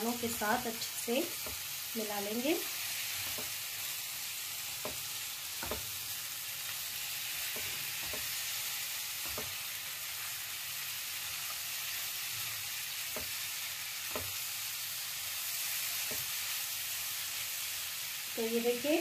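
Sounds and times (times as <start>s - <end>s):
food sizzling in a pan: 0.0s - 19.0s
spatula knocking against pan: 3.2s - 3.6s, 4.8s - 6.0s, 7.4s - 8.4s, 9.2s - 9.6s, 14.0s - 14.4s.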